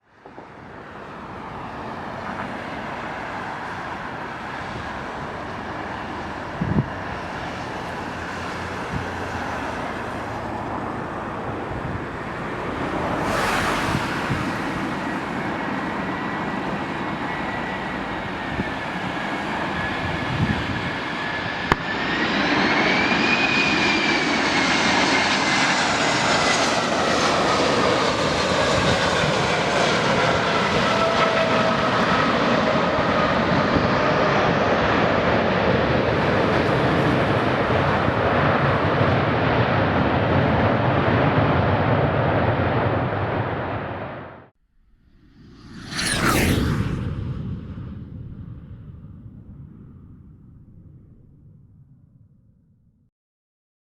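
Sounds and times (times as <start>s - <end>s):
jet engine rumble: 0.2s - 52.4s
whining tone: 7.6s - 33.0s, 44.7s - 49.2s.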